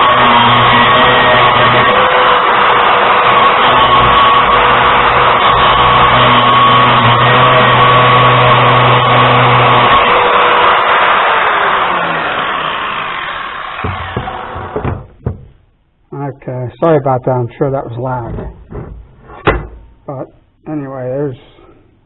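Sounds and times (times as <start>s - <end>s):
grinder grinding steel bolt: 0.0s - 15.6s.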